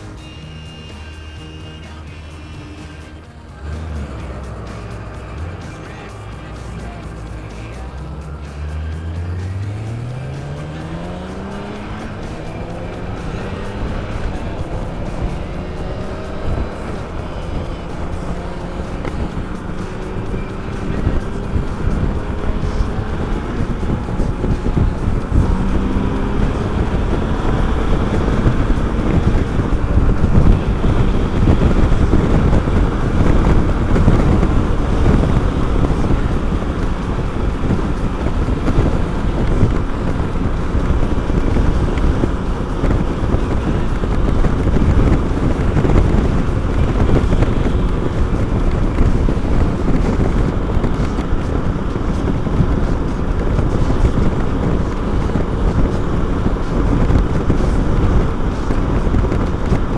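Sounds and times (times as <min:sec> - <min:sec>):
motorcycle engine running: 0:00.0 - 0:59.9
wind buffeting microphone: 0:03.5 - 0:59.9.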